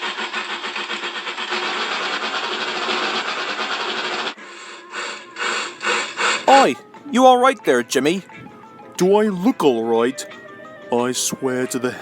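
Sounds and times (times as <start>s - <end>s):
freight train wheels rattling: 0.0s - 4.4s.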